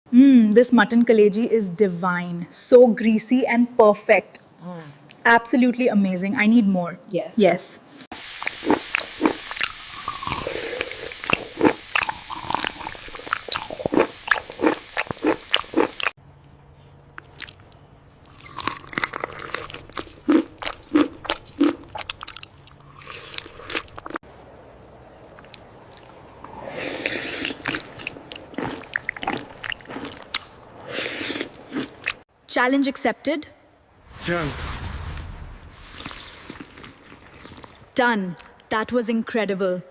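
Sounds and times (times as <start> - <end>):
chewing with wet mouth smacks: 17.1 - 24.2, 25.2 - 32.2, 36.5 - 38.6.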